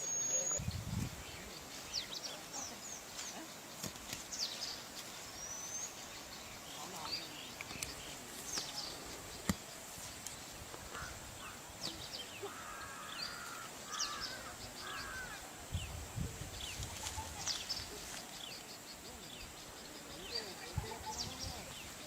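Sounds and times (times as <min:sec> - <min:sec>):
bird chirps and calls: 0:00.0 - 0:09.7
steady background hiss: 0:00.0 - 0:22.0.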